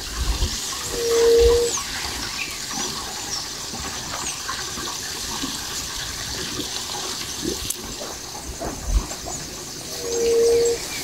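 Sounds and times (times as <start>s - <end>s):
birds chirping: 7.2s - 11.0s.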